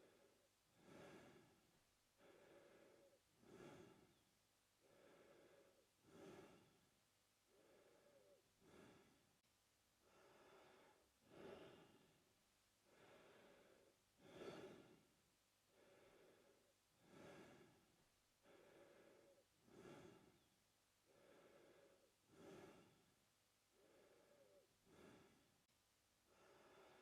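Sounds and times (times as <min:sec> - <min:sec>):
man breathing through mouth: 0:00.1 - 0:01.6, 0:02.2 - 0:04.2, 0:04.8 - 0:06.8, 0:07.5 - 0:09.2, 0:10.0 - 0:12.0, 0:12.8 - 0:15.0, 0:15.7 - 0:17.8, 0:18.4 - 0:20.5, 0:21.1 - 0:23.1, 0:23.7 - 0:25.5.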